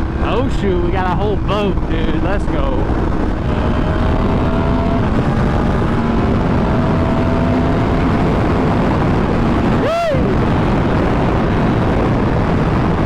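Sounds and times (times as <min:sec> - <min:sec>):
motorcycle engine at highway speed: 0:00.0 - 0:13.0
wind rush on microphone: 0:00.0 - 0:13.0.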